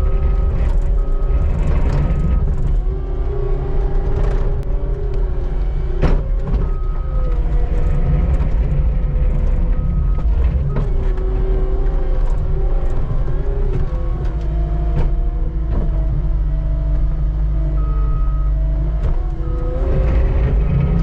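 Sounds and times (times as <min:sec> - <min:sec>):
skid steer engine droning: 0:00.0 - 0:21.0.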